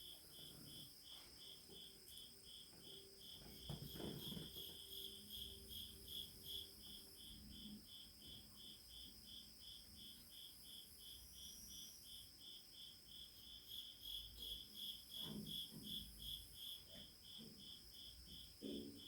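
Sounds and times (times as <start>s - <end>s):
high insect whine: 0.0s - 19.0s
insects chirping: 0.0s - 19.0s.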